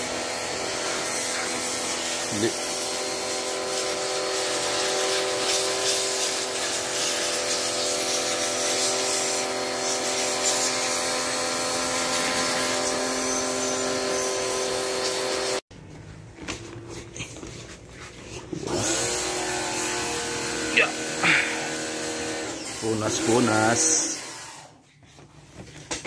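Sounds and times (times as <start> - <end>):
water spray hissing: 3.7 - 15.6.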